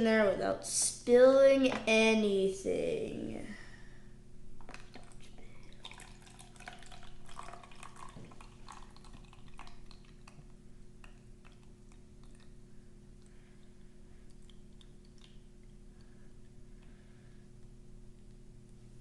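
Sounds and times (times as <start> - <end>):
water trickling into reservoir: 4.6 - 12.6, 13.2 - 16.6
water drips: 4.6 - 16.9.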